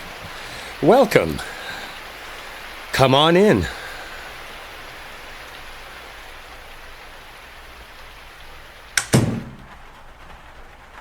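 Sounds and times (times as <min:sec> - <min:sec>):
steady rain hiss: 0:00.0 - 0:11.0
door shutting thuds: 0:09.0 - 0:10.0.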